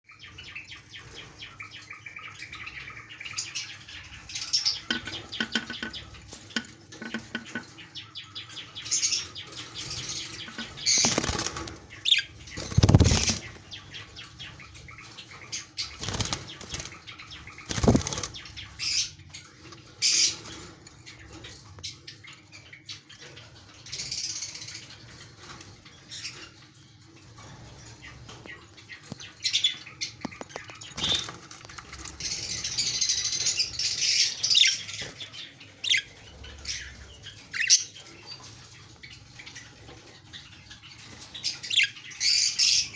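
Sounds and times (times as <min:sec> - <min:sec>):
budgerigars chirping: 0:00.2 - 0:26.6, 0:27.4 - 0:42.9
wings flapping: 0:10.5 - 0:11.9, 0:12.5 - 0:13.7, 0:15.9 - 0:17.0, 0:17.6 - 0:18.4.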